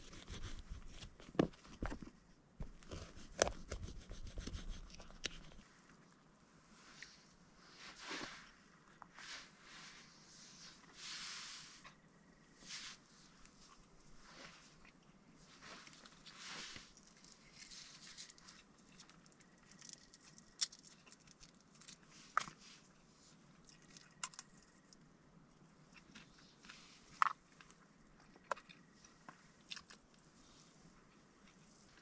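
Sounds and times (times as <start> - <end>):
person chewing food: 25.9 - 30.2.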